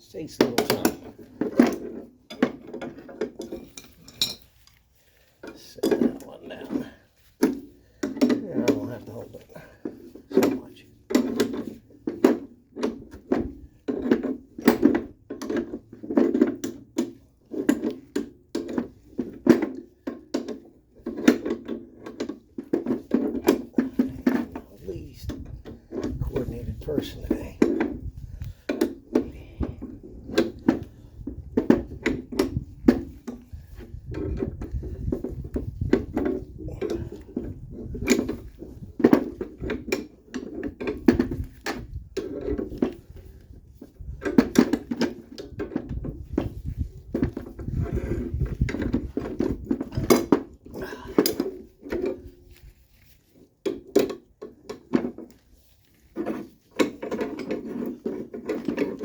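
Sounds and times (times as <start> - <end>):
wrenches cranking with metallic clicks: 0.0 - 31.2.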